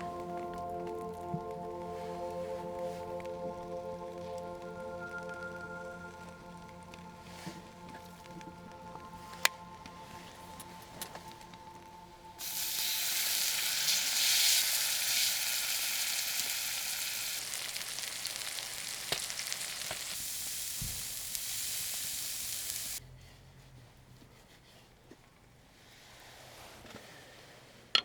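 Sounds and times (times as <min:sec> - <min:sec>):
food sizzling in a pan: 0:12.4 - 0:23.0.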